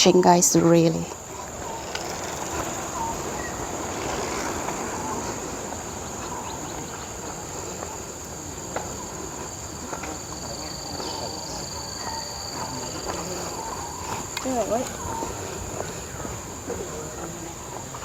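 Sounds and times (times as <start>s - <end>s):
background hiss: 0.0s - 18.0s
high insect tone: 0.0s - 18.0s
insects droning: 0.0s - 18.0s
faint ticks: 1.8s - 4.9s, 12.6s - 15.0s.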